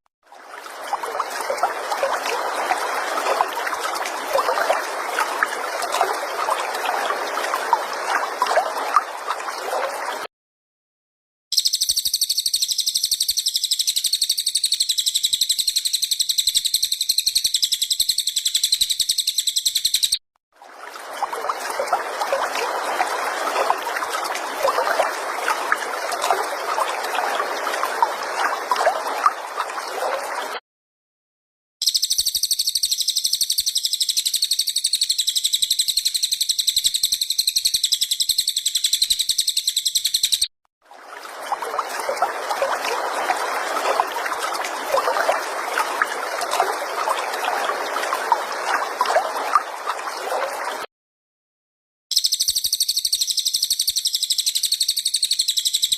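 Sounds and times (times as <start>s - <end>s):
running water: 0.3s - 10.3s, 20.6s - 30.6s, 40.8s - 50.9s
songbird high trill: 11.6s - 20.2s.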